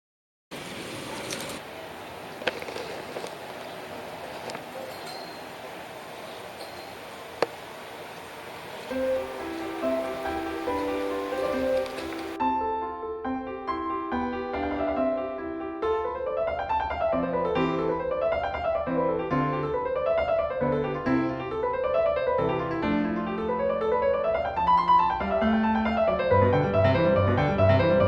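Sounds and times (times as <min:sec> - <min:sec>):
piano arpeggios: 0:08.9 - 0:28.0.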